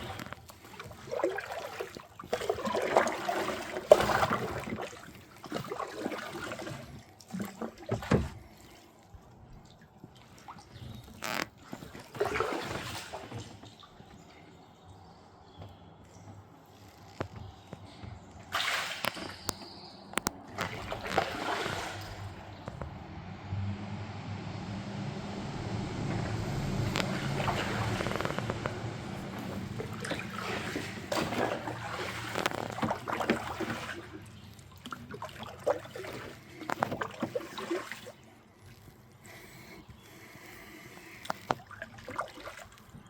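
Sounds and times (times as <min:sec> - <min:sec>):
water splashing around kayak: 0:00.0 - 0:43.0
rush of moving water: 0:20.2 - 0:38.3.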